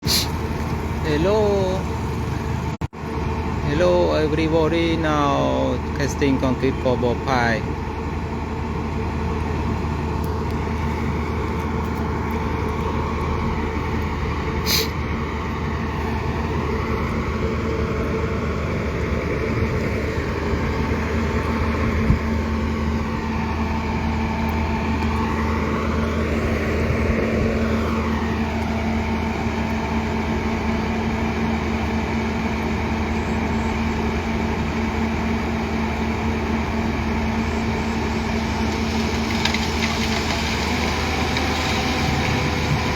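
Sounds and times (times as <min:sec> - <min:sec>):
sharp hiss: 0:00.0 - 0:00.4, 0:14.6 - 0:15.0
diesel engine running: 0:00.0 - 0:42.9.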